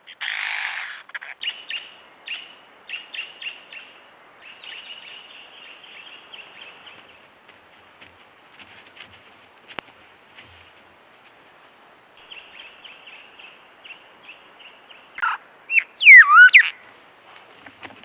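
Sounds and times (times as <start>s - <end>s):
bird chirping and whistling: 15.2s - 16.7s.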